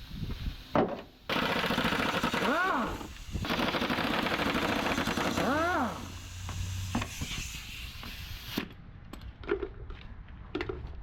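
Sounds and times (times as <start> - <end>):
power tool rattling: 1.3 - 6.2.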